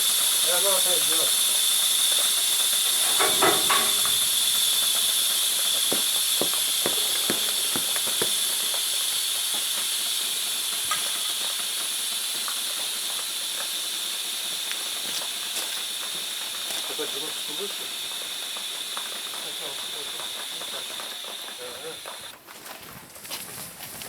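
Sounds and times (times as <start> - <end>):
air hissing out of tyre: 0.0 - 22.4
light knocks on wheel: 5.9 - 8.6.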